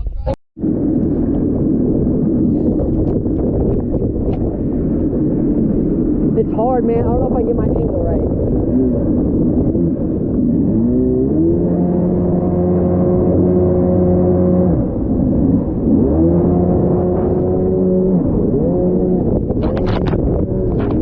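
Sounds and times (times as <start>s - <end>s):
jet ski engine revving: 8.3s - 21.0s.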